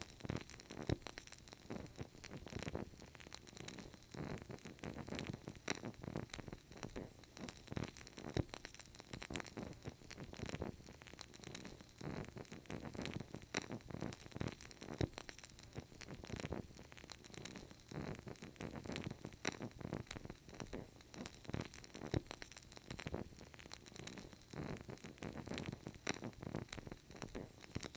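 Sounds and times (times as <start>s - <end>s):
candle crackling: 0.0s - 27.9s.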